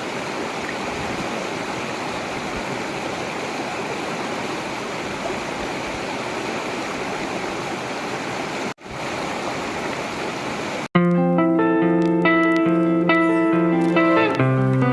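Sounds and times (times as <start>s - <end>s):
river water flowing: 0.0s - 10.9s, 12.0s - 14.9s
plucked guitar music: 11.0s - 14.9s.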